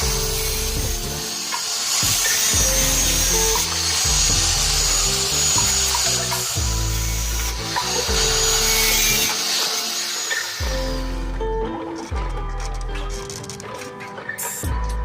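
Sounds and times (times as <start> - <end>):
power tool whining: 0.0 - 11.9
background music: 0.0 - 15.0.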